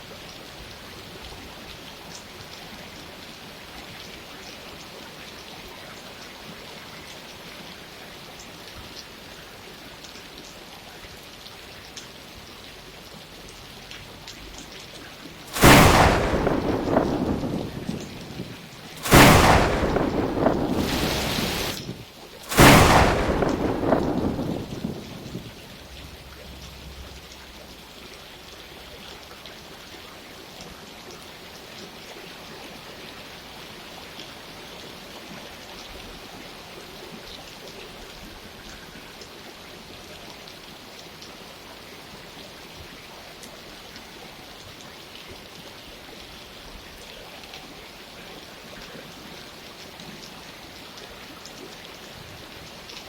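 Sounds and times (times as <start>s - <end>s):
steady rainfall: 0.0s - 53.0s
loud thunderclap rumbling: 15.5s - 26.2s.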